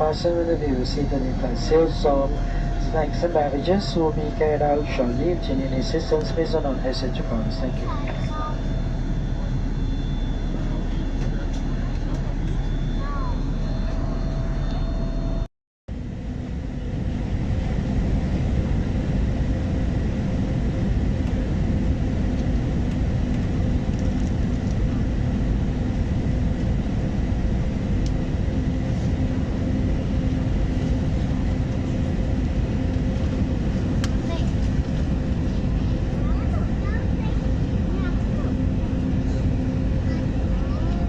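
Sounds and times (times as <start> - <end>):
faint steady hums: 0.0 - 15.5
airliner cabin engine noise: 0.0 - 41.0.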